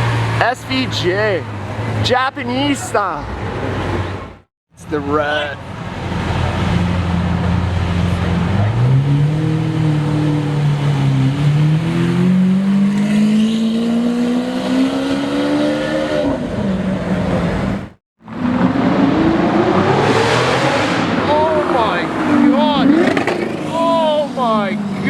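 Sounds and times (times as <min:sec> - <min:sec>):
car engine accelerating: 0:05.1 - 0:25.0.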